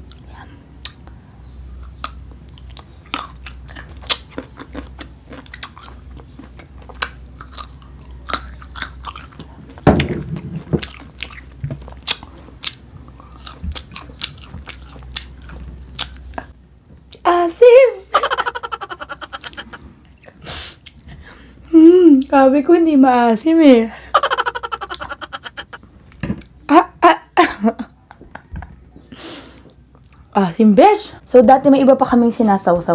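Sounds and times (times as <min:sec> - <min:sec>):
crunchy mango chewing: 0:00.0 - 0:17.2
deep bump: 0:09.8 - 0:11.0.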